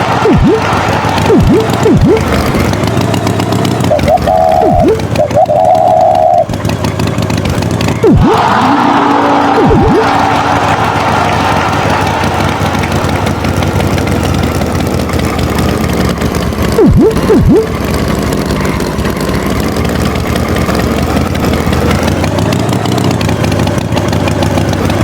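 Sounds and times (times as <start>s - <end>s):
swooping tones: 0.0s - 6.6s, 7.9s - 11.6s, 16.7s - 17.8s
tractor engine idling: 0.0s - 25.0s.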